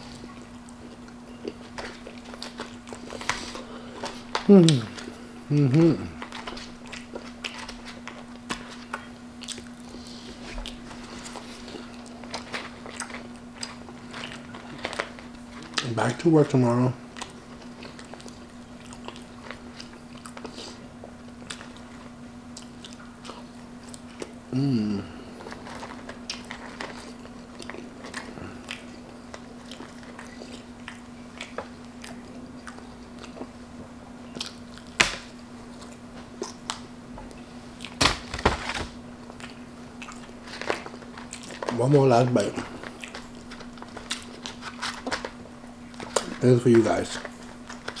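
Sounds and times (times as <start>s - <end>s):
person chewing: 0.0s - 16.0s, 17.1s - 33.6s, 34.2s - 38.0s, 39.2s - 46.4s
faint steady hum: 0.0s - 48.0s
hummed voice sound: 4.4s - 6.2s, 24.5s - 25.4s.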